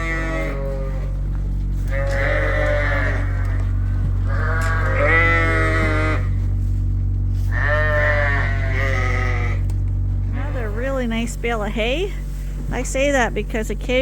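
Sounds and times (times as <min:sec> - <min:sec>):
sheep bleating: 0:00.0 - 0:06.5, 0:07.4 - 0:09.7
low machine hum: 0:00.0 - 0:14.0.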